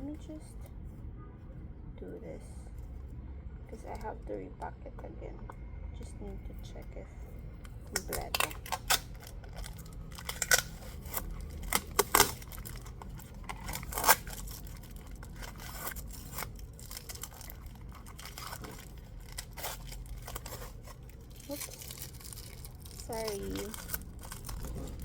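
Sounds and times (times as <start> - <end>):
packaging rustling: 7.8 - 25.0.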